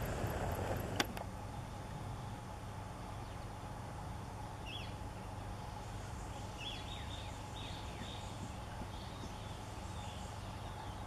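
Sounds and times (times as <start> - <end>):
low outdoor rumble: 0.0 - 11.0
faint bird chirps: 5.6 - 11.0.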